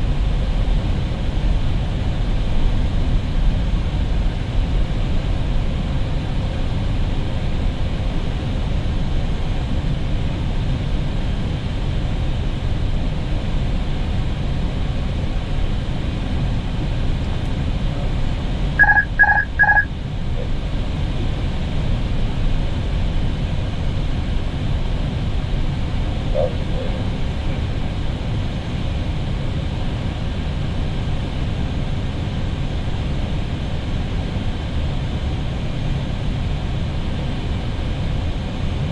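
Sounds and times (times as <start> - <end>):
aircraft engine noise: 0.0 - 38.9
short electronic cockpit beeps: 18.8 - 19.9.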